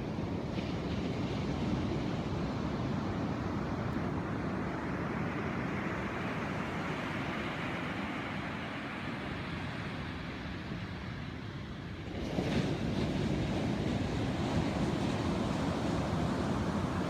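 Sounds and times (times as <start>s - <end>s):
wind buffeting microphone: 12.0s - 17.0s.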